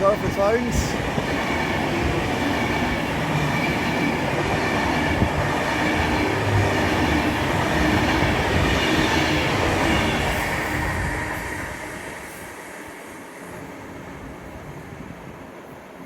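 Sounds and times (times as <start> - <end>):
electric train passing at speed: 0.0 - 16.0.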